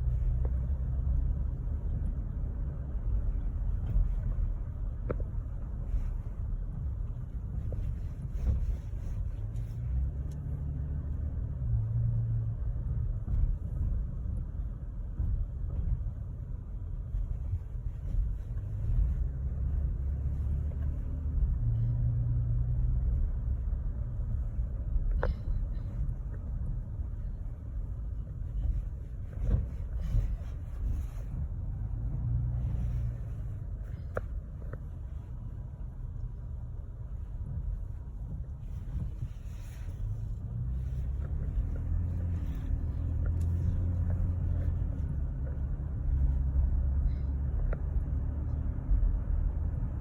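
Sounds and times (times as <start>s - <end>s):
truck engine and road rumble: 0.0s - 50.0s.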